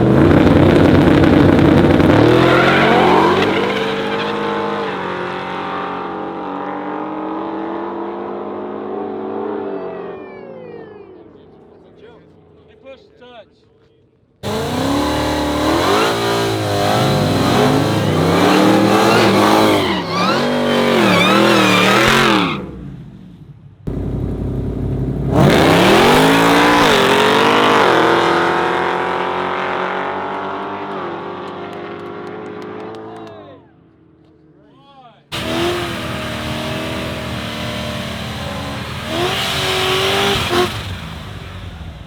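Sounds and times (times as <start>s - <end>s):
car engine revving: 0.0s - 7.7s, 14.4s - 23.1s, 23.9s - 32.9s, 35.3s - 42.0s.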